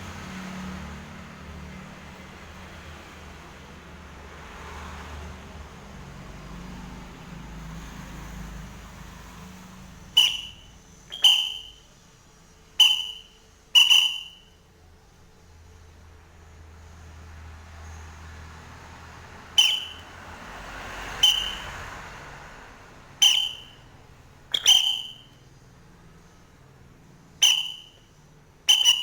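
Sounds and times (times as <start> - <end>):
bird giving short sharp calls: 10.2 - 11.8, 12.8 - 14.5, 19.6 - 20.1, 21.2 - 21.8, 23.2 - 23.8, 24.5 - 25.3, 27.4 - 28.0, 28.7 - 29.0.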